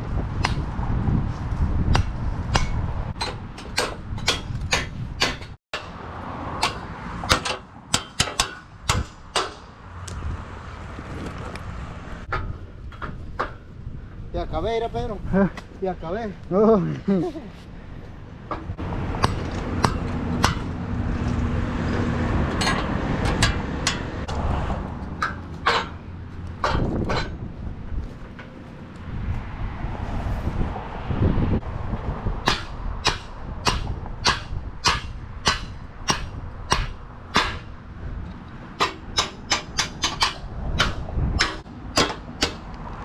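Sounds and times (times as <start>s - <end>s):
hammer striking wooden forms: 2.0s - 6.0s, 6.6s - 9.7s, 18.5s - 20.7s, 25.2s - 26.0s, 26.6s - 27.3s, 32.5s - 37.7s, 38.8s - 42.7s
low engine rumble: 8.7s - 43.0s.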